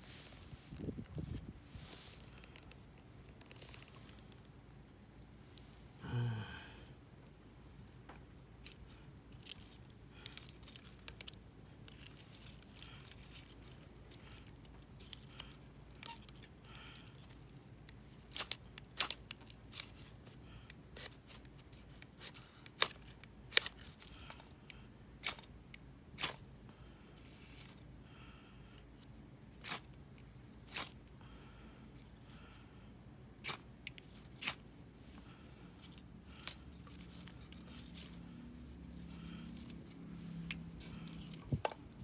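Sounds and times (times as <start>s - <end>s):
knife scraping wooden stick: 25.2s - 25.5s, 33.4s - 34.6s, 35.8s - 41.8s.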